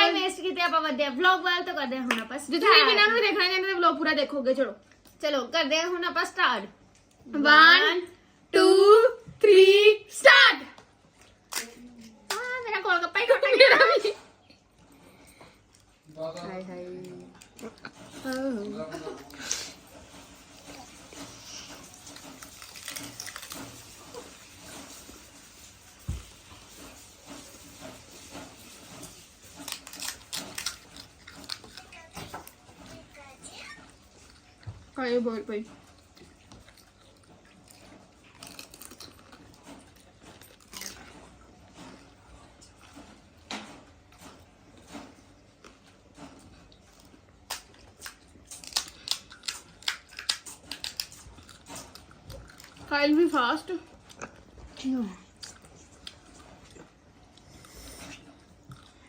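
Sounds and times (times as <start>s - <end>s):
crisp shells crunching and chewed: 20.4s - 25.3s, 26.8s - 32.8s, 35.8s - 42.8s, 46.6s - 52.9s, 53.8s - 59.0s
crisp shells crunching: 21.9s - 24.4s, 29.2s - 32.0s, 47.5s - 52.0s.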